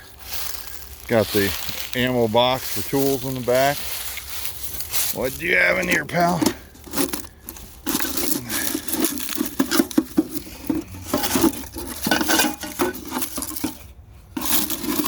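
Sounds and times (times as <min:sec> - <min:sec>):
metal tools clinking in box: 0:04.9 - 0:13.8, 0:14.4 - 0:15.0.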